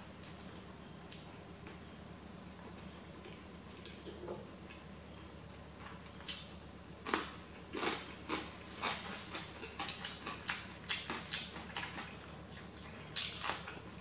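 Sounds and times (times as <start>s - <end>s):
person chewing noodles: 7.0s - 14.0s.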